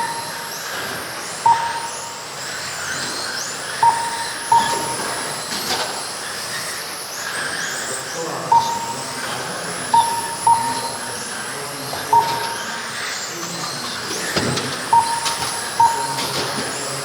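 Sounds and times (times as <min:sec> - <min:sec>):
short electronic beeps: 0:00.0 - 0:03.1, 0:03.8 - 0:05.6, 0:08.5 - 0:11.3, 0:12.0 - 0:13.1, 0:14.9 - 0:17.0
rc car motors whining: 0:00.0 - 0:17.0.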